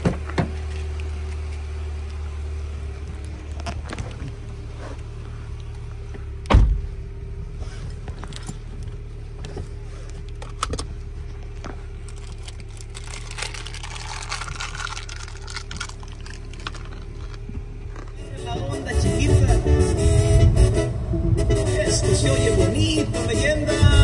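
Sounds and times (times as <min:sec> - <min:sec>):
car engine humming: 0:00.0 - 0:24.0
heavy thud: 0:06.5 - 0:06.9.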